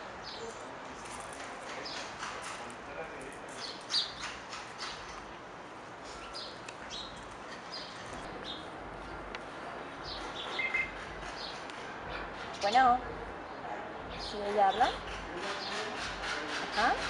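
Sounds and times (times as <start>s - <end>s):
small birds chirping: 1.5s - 2.6s, 3.2s - 5.4s, 6.0s - 16.0s.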